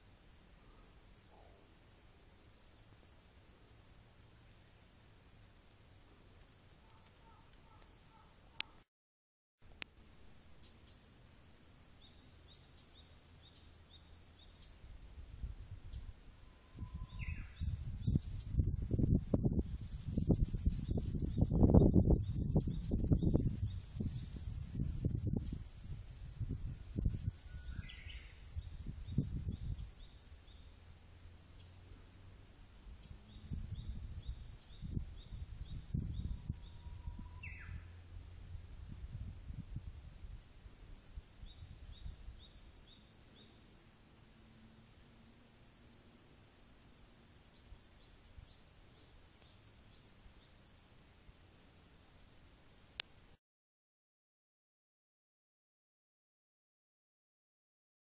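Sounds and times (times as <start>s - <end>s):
small birds calling: 6.8s - 8.8s, 10.6s - 11.1s, 15.9s - 18.6s, 27.6s - 32.1s, 33.0s - 38.0s, 47.4s - 50.9s.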